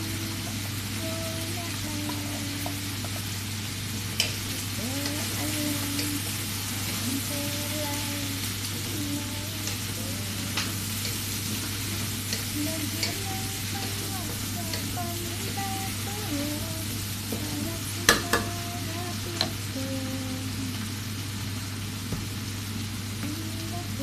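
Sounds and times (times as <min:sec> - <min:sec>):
chicken sizzling: 0:00.0 - 0:24.0.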